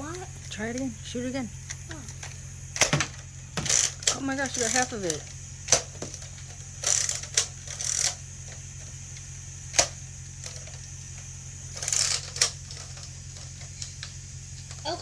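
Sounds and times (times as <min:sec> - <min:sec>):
plastic blaster clicks: 0:01.7 - 0:06.2
rustling plastic clatter: 0:02.2 - 0:08.6, 0:11.7 - 0:14.9.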